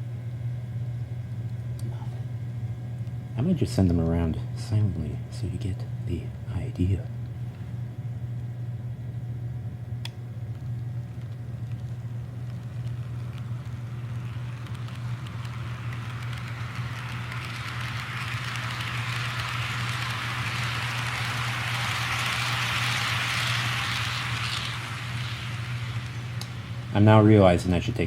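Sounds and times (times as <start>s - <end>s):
steady low hum: 0.0s - 28.0s
click: 10.0s - 10.6s
model train rolling on track: 12.5s - 28.0s.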